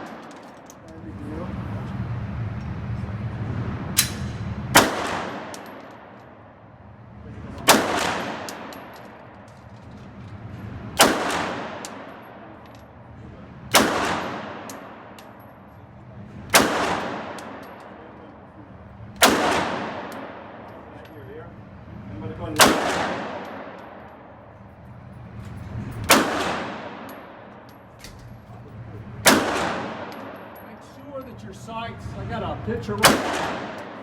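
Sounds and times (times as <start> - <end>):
handgun shots echoing: 4.0 - 6.3, 7.6 - 9.5, 11.0 - 12.6, 13.7 - 15.4, 16.5 - 18.0, 19.2 - 20.7, 22.6 - 24.2, 26.0 - 28.4, 29.2 - 30.8, 33.0 - 34.0.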